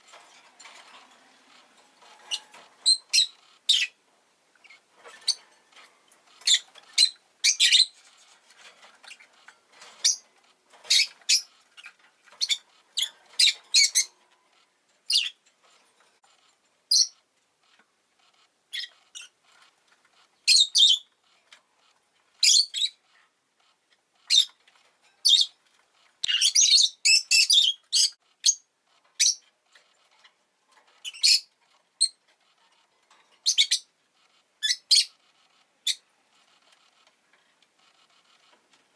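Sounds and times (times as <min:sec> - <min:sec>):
lovebird chirping: 0:02.1 - 0:04.0, 0:06.3 - 0:08.0, 0:10.0 - 0:10.3, 0:10.9 - 0:14.2, 0:15.1 - 0:15.4, 0:16.9 - 0:17.2, 0:18.7 - 0:19.4, 0:20.4 - 0:21.1, 0:22.4 - 0:23.0, 0:24.3 - 0:24.6, 0:26.2 - 0:29.4, 0:31.0 - 0:32.2, 0:33.4 - 0:33.9, 0:34.6 - 0:35.2, 0:35.8 - 0:36.1.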